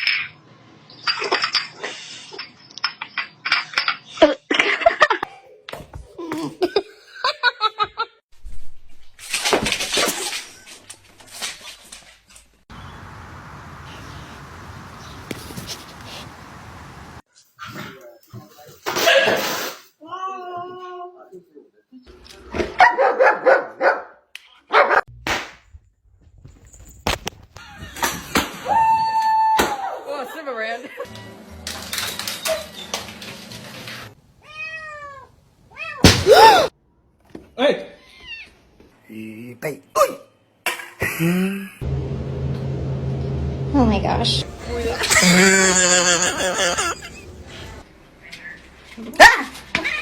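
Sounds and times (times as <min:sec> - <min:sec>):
dog barking: 0:22.8 - 0:25.1
people laughing: 0:44.5 - 0:47.8.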